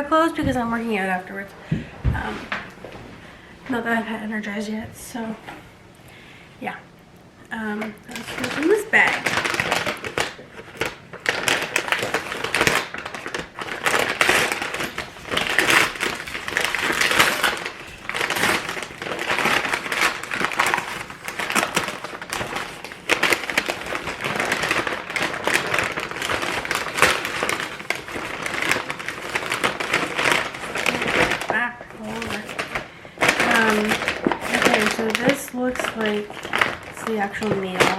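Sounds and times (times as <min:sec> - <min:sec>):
food bag rustling and crinkling: 0:08.0 - 0:37.9.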